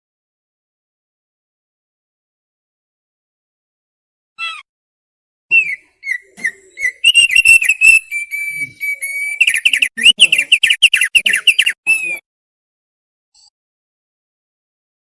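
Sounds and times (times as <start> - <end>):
bird chirping and whistling: 5.5 - 12.2.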